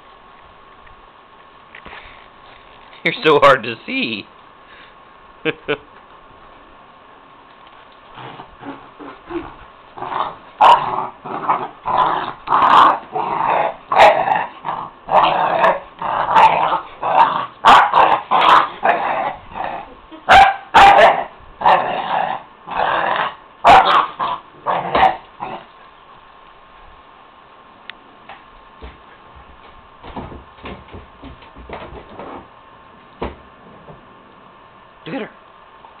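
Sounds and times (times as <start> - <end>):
dogs growling: 8.1 - 20.0, 20.8 - 25.8
dogs yipping and barking: 17.6 - 19.3, 20.2 - 21.9, 23.6 - 25.6.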